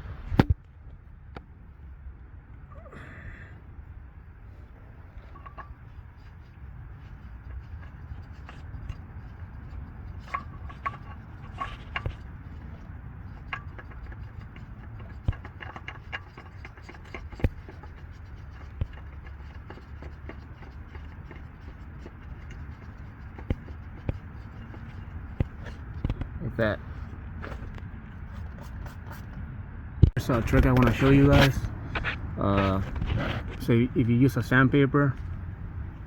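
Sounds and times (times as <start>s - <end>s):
steady low rumble: 0.0s - 36.0s
clicks and knocks handling parts: 5.1s - 29.4s.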